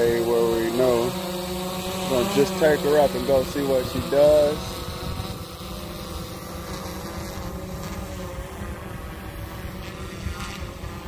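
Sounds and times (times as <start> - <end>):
drone propellers humming: 0.0 - 11.0
wind noise on microphone: 3.7 - 11.0.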